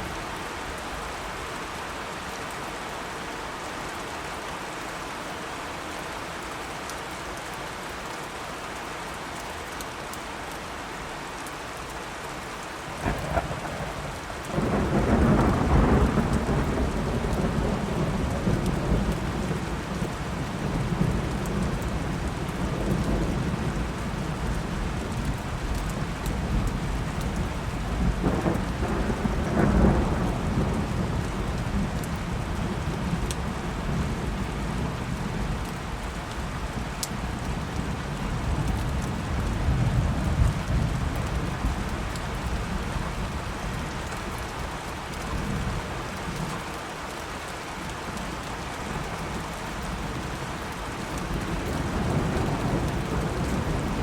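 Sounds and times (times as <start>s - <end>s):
steady rain: 0.0s - 54.0s
thunder rumbling: 12.9s - 32.8s, 50.9s - 54.0s.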